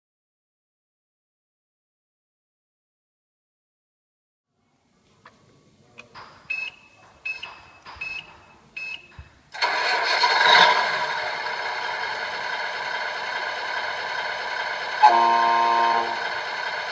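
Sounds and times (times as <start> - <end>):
clicks: 6.0 - 9.7
simulated diesel engine running: 9.5 - 16.9.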